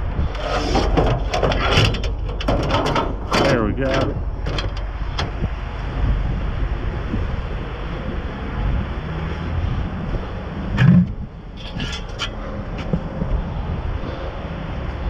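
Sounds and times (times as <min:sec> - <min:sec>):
low rumble: 0:00.0 - 0:14.9.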